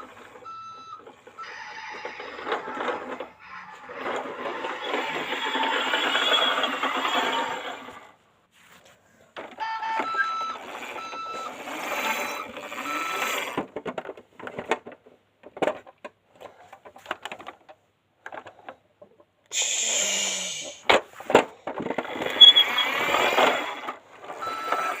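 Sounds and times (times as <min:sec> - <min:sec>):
hissy toy engine noise: 0:10.6 - 0:13.6, 0:19.5 - 0:21.0, 0:22.1 - 0:23.9
plastic clicks and clatter: 0:12.4 - 0:19.3
short electronic beeps: 0:22.4 - 0:23.0.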